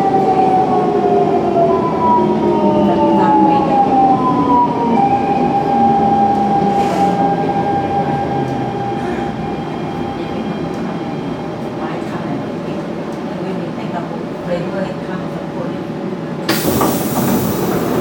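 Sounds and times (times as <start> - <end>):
running train rumble: 16.5 - 18.0
train inverter whining: 16.5 - 18.0.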